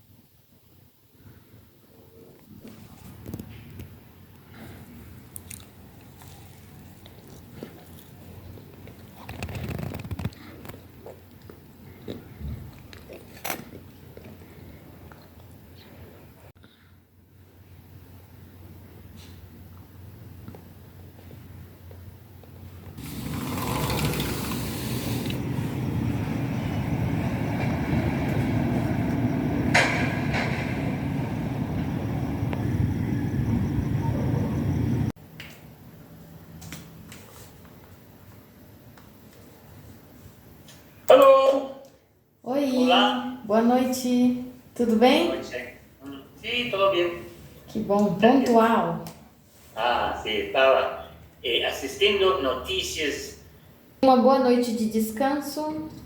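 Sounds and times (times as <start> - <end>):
crunchy chewing: 5.2 - 15.6
low mechanical rumble: 22.6 - 35.2.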